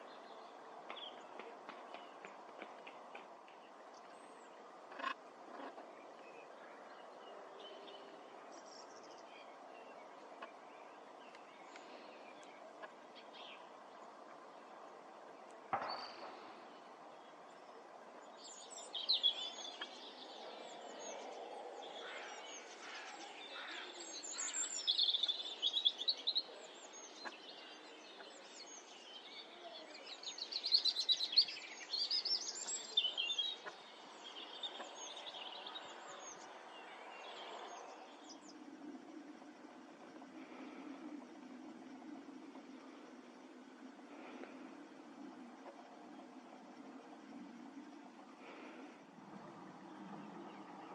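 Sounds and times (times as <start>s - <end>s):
outdoor background hum: 0.8s - 50.9s
small birds chirping and trilling: 15.7s - 50.9s.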